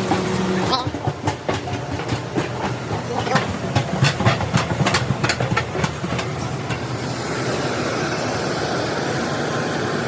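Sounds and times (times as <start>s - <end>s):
steady rushing noise: 0.5s - 10.0s.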